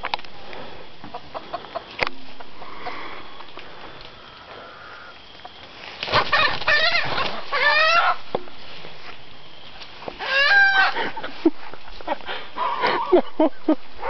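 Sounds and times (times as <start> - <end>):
rooster crowing: 6.3 - 8.2, 10.2 - 11.0.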